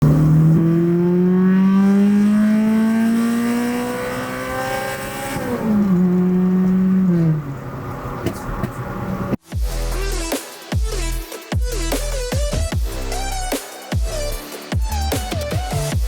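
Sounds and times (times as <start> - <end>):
car engine accelerating: 0.0 - 9.4.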